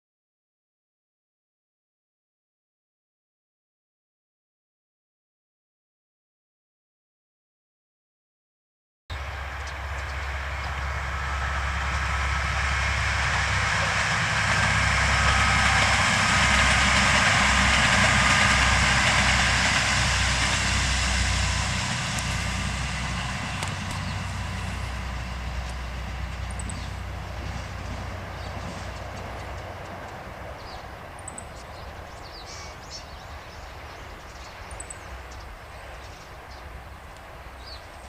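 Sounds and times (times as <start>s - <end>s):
rail and wheel noise: 9.1s - 38.0s
train engine rumble: 9.1s - 38.0s.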